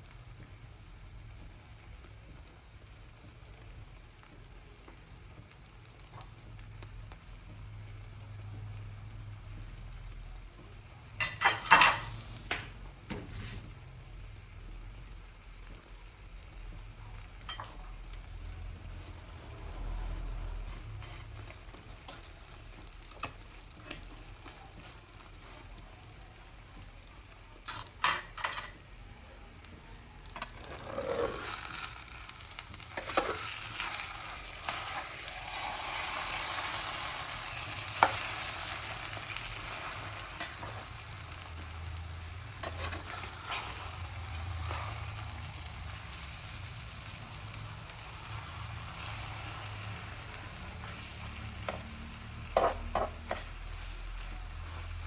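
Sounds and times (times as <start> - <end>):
food sizzling in a frying pan: 0.0 - 55.0
utensil scraping a pan: 13.1 - 13.7, 20.6 - 22.4, 30.4 - 31.8, 50.8 - 53.6.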